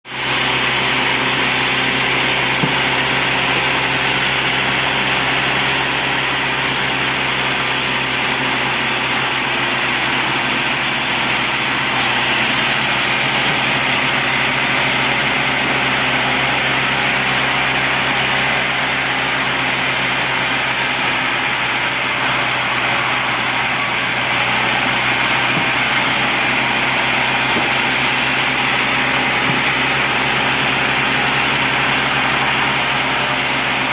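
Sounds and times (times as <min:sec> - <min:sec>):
bandsaw running: 0:00.1 - 0:33.9.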